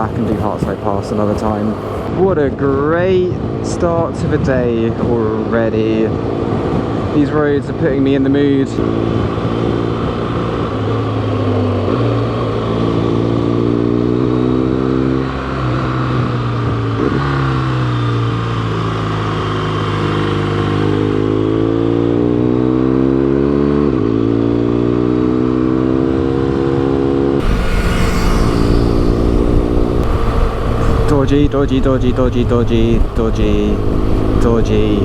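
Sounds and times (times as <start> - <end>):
motorcycle engine accelerating: 0.0 - 2.1, 8.8 - 35.0
wind rush on microphone: 27.4 - 35.0.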